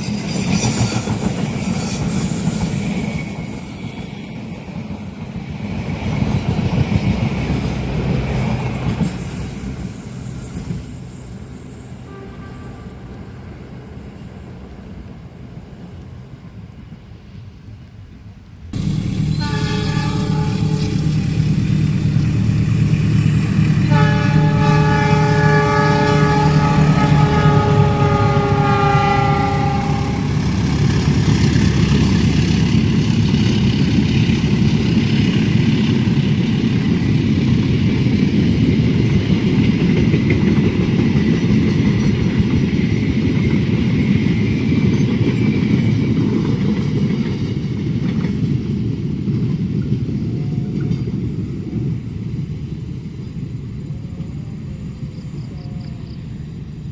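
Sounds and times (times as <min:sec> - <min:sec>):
train passing rumble: 0:00.0 - 0:56.9
train horn blasts: 0:12.0 - 0:13.2, 0:18.8 - 0:21.6, 0:23.7 - 0:30.5.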